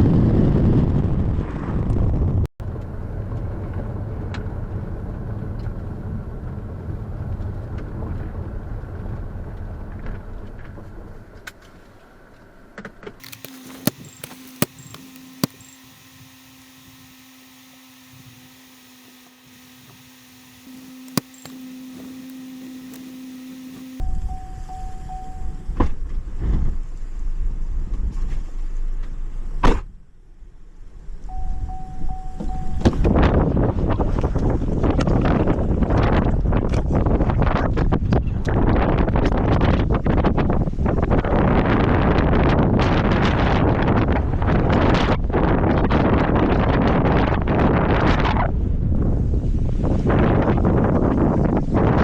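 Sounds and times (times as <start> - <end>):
sharp clicks: 13.2 - 24.0
steady hum: 13.2 - 24.0.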